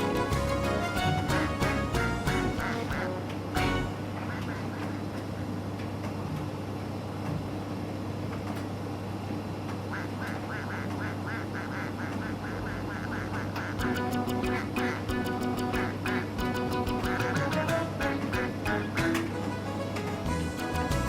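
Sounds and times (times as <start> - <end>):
tumble dryer humming: 13.8 - 21.0.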